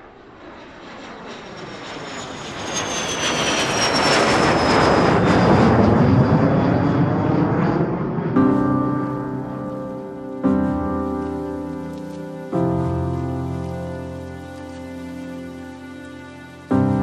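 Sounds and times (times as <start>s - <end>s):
airliner engines roaring: 0.0s - 17.0s
high engine whine: 0.0s - 17.0s
piano music: 8.2s - 17.0s.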